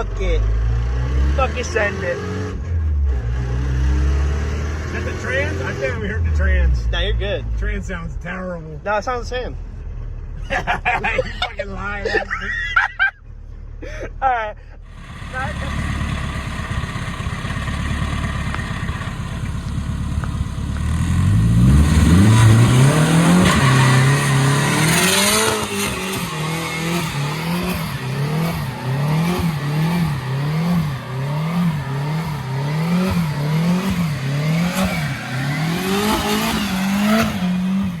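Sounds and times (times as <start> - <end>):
truck engine revving: 14.9 - 38.0.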